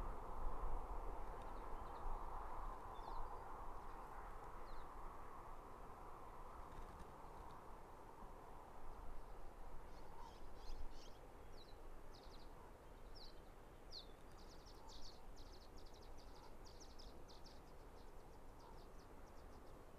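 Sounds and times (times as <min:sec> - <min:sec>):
faint low outdoor rumble: 0:00.0 - 0:19.9
small birds chirping: 0:09.8 - 0:19.9.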